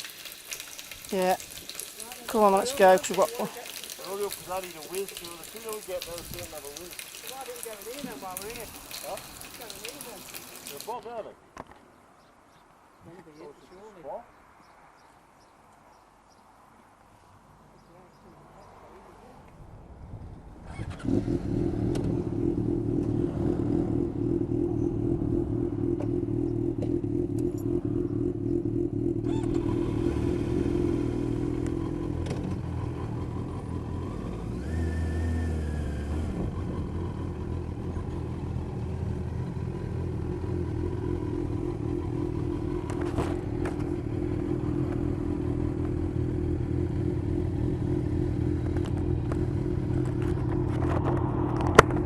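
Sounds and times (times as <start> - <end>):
motorcycle engine running: 20.7 - 52.0.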